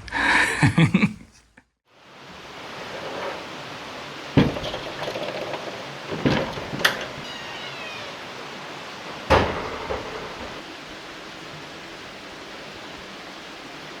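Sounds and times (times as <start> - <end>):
steady hiss: 1.9 - 14.0
sharp knocks: 4.4 - 7.7.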